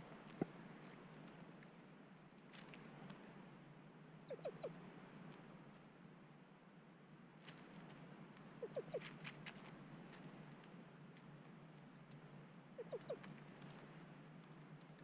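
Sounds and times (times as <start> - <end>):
grouse clucking: 4.2 - 4.8, 8.4 - 10.6, 12.8 - 13.9.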